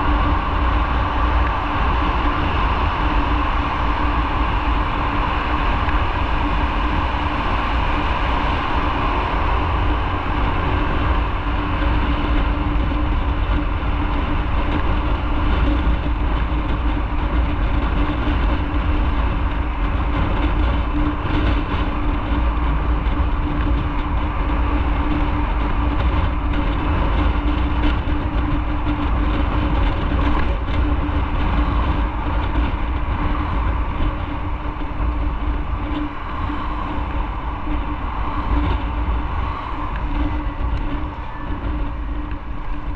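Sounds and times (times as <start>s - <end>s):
motorcycle engine drone: 0.0s - 42.9s
road rumble: 0.0s - 42.9s
wind: 0.0s - 42.9s.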